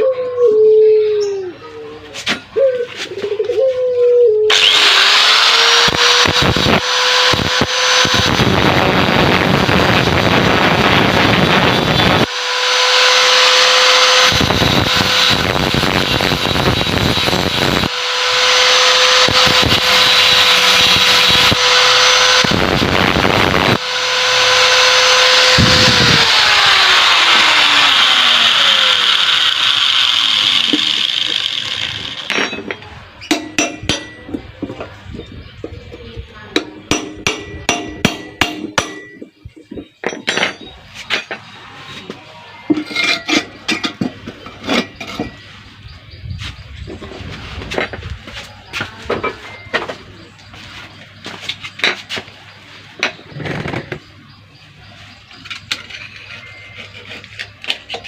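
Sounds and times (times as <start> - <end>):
angle grinder motor whine: 4.5 - 32.4
grinder disc spinning down: 4.5 - 32.4
grinding disc cutting metal: 4.5 - 32.8, 42.8 - 45.4.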